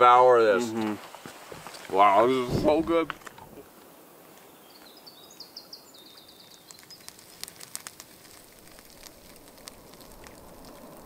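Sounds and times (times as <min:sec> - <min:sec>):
outdoor ambience hiss: 0:00.0 - 0:11.0
sharp crackling clicks: 0:06.1 - 0:11.0.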